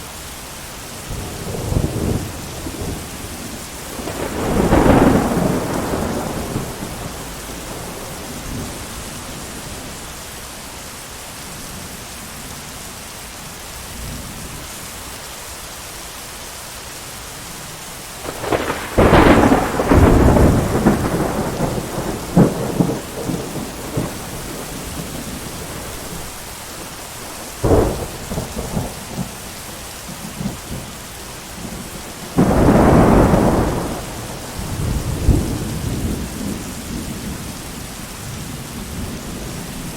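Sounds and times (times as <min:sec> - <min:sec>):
heavy rain: 0:00.0 - 0:39.9
sharp thunder crack: 0:03.9 - 0:09.1, 0:18.2 - 0:26.3, 0:31.6 - 0:37.4
thunder crash and rumble: 0:03.9 - 0:09.2, 0:18.2 - 0:26.3, 0:31.6 - 0:37.5.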